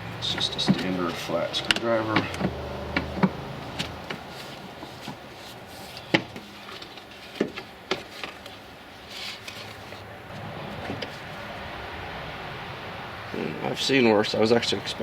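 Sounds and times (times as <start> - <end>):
short rustle: 3.7 - 11.3.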